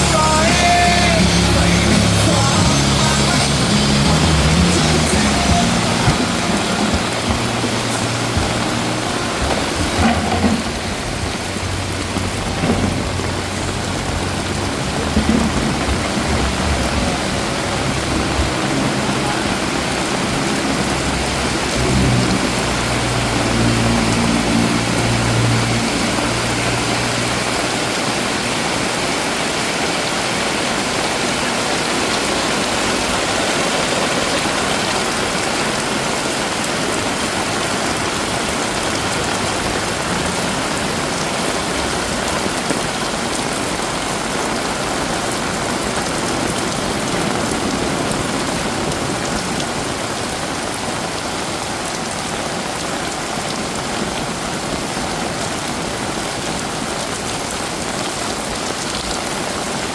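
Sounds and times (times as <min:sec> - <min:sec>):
low engine hum: 0:00.0 - 0:28.3
heavy rain falling: 0:00.0 - 0:59.9.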